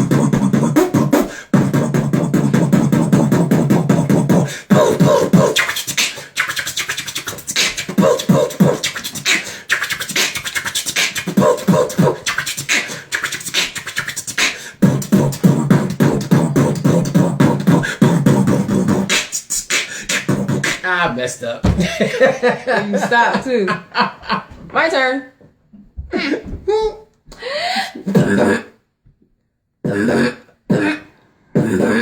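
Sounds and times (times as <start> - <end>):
person beatboxing: 0.0 - 21.3, 27.9 - 28.8, 29.8 - 32.0.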